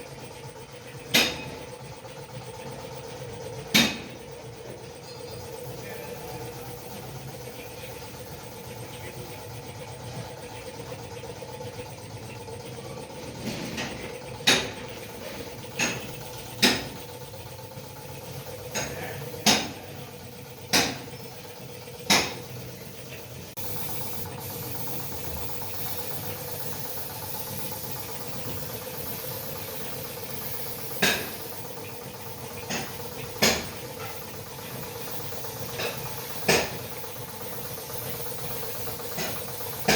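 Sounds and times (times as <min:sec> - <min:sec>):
mechanical hum with held tone: 0:00.0 - 0:39.9
sharp metallic knocks and clanks: 0:01.1 - 0:01.7, 0:03.7 - 0:04.2, 0:13.3 - 0:17.2, 0:18.6 - 0:19.9, 0:20.6 - 0:22.6, 0:27.4 - 0:37.0, 0:39.0 - 0:39.9.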